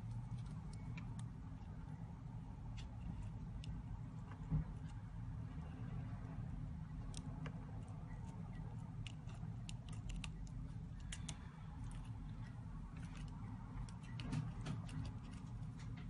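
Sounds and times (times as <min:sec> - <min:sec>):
steady low hum: 0:00.0 - 0:16.0
small tools clicking on phone parts: 0:07.0 - 0:16.0.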